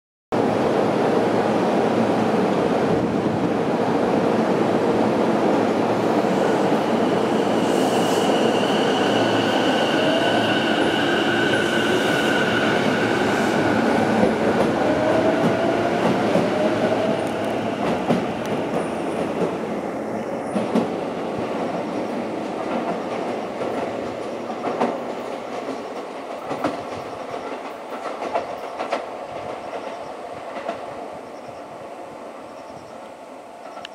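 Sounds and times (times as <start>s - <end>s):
train wheels rumbling and clacking: 6.2s - 31.6s.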